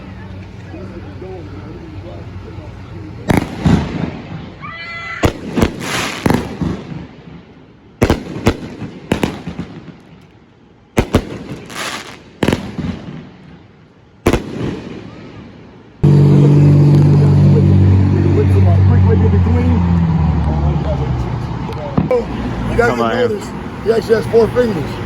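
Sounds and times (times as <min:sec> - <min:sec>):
loud steady droning: 0:00.0 - 0:04.8, 0:14.9 - 0:25.0
fireworks banging and crackling: 0:03.2 - 0:04.6, 0:05.2 - 0:17.4.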